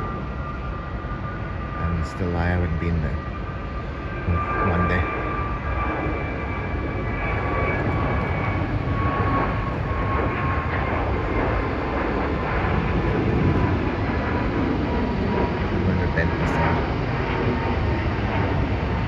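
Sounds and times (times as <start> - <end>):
jet engines roaring and whining: 0.0 - 19.0.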